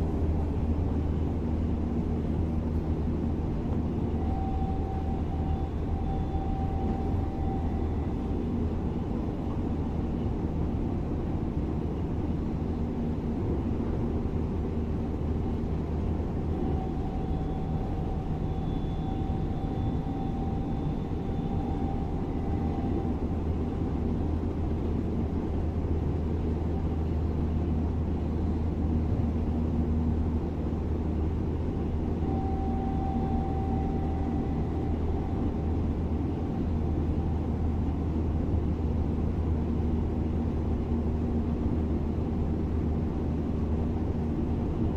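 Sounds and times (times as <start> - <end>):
faint whining drive tones: 0.0 - 11.3, 15.1 - 25.8, 26.4 - 38.7
electric train low rumble: 0.0 - 44.9.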